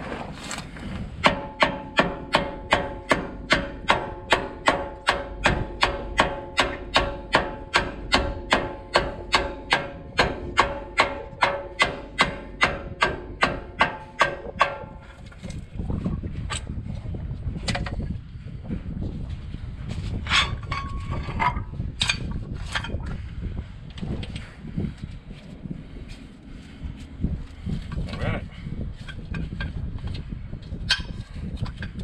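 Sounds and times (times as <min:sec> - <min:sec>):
hammer blows on metal: 0:01.2 - 0:15.2.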